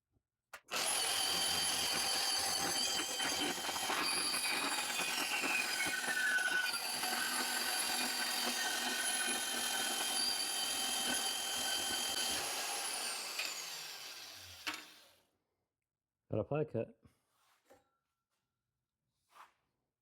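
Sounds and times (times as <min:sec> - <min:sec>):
band saw cutting metal tube: 0:00.7 - 0:15.1.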